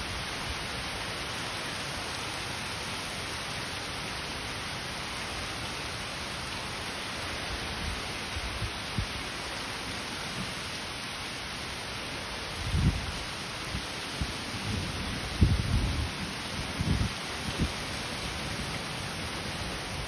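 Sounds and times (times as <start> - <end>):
rain hissing: 0.0 - 20.0.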